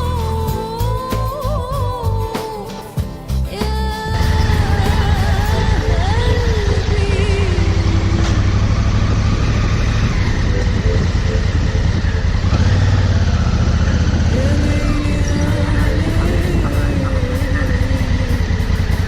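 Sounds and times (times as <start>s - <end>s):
motorcycle engine running: 4.1s - 19.0s
road and wind noise: 7.6s - 14.4s.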